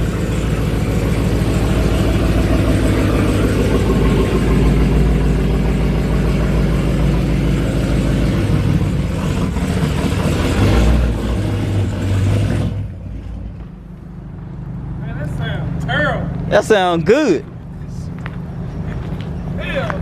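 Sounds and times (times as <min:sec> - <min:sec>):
car engine with deep loud exhaust: 0:00.0 - 0:20.0.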